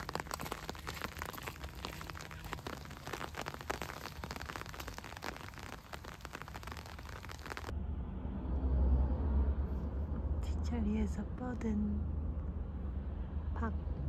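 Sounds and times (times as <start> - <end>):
raindrops pattering: 0.0 - 7.7.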